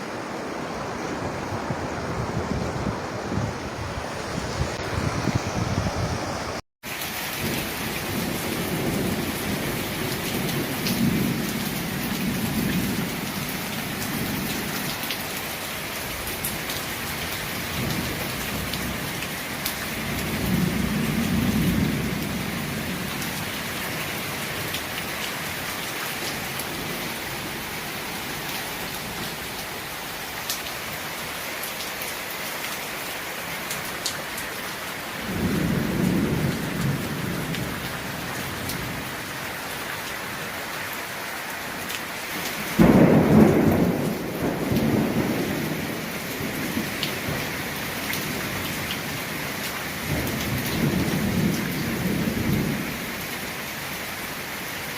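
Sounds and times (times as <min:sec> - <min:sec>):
thunder rumbling: 0:00.0 - 0:06.6, 0:35.2 - 0:39.4, 0:42.6 - 0:49.3
heavy rain falling: 0:00.0 - 0:54.9
loud thunderclap: 0:35.2 - 0:39.0, 0:42.8 - 0:47.5.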